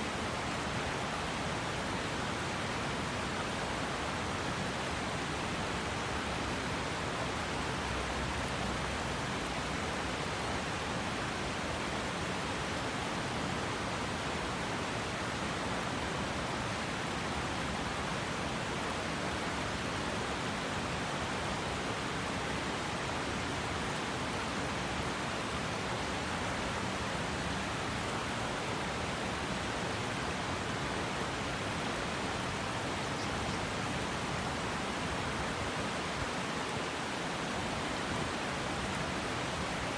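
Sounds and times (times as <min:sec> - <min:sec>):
water rushing over rocks: 0:18.1 - 0:39.9.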